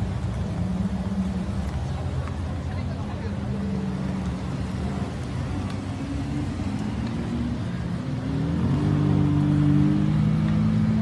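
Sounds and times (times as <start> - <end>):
car engines running slowly: 0.0 - 11.0
car engine revving: 3.6 - 11.0.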